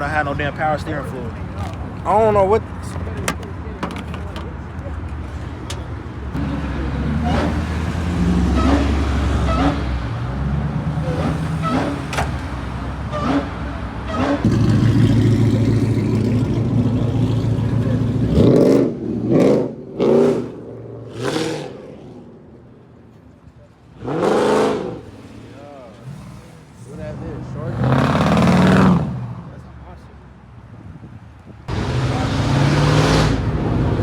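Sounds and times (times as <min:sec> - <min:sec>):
car engine revving: 0:05.3 - 0:22.3, 0:23.9 - 0:29.4, 0:31.7 - 0:34.0.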